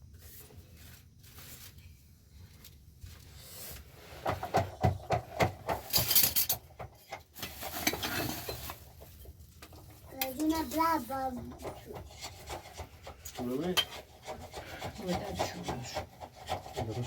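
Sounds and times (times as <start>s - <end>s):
objects scraping: 0.0s - 17.0s
objects knocking and clattering: 4.0s - 17.0s.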